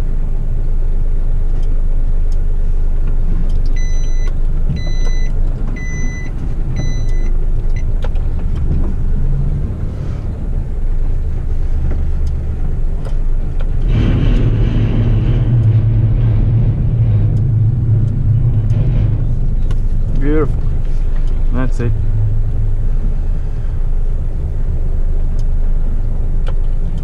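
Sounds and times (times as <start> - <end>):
diesel truck engine running: 0.0 - 27.0
electronic warning beeps: 3.8 - 7.9.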